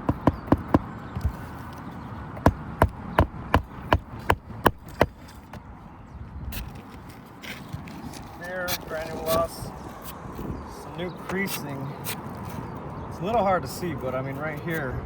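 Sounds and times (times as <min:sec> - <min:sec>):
hammer striking shingles: 0:00.0 - 0:01.5, 0:02.4 - 0:05.4.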